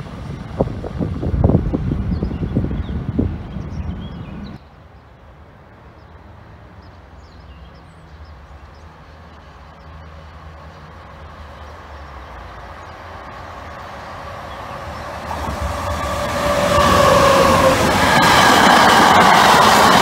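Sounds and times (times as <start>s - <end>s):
locomotive whining tone: 13.0s - 20.0s.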